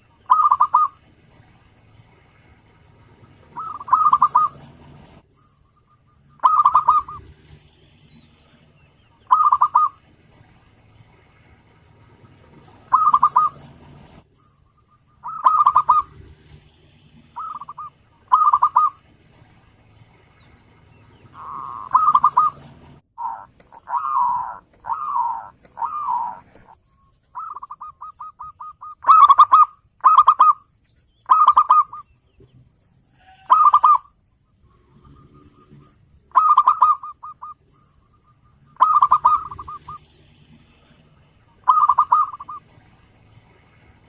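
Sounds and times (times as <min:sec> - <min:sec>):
dove cooing: 0:00.0 - 0:01.5, 0:03.2 - 0:07.3, 0:09.2 - 0:10.2, 0:12.3 - 0:16.3, 0:17.2 - 0:19.1, 0:21.2 - 0:30.6, 0:31.2 - 0:32.1, 0:33.2 - 0:34.1, 0:34.8 - 0:40.1, 0:41.5 - 0:42.9.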